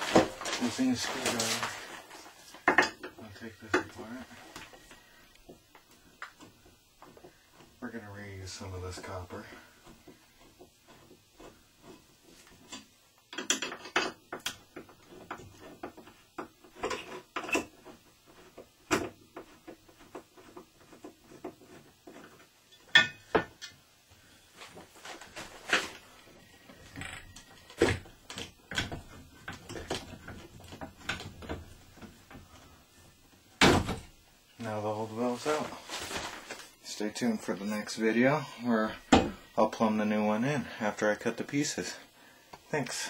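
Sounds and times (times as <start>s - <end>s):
tools and metal pipe parts clinking: 2.6s - 4.0s, 8.9s - 23.8s.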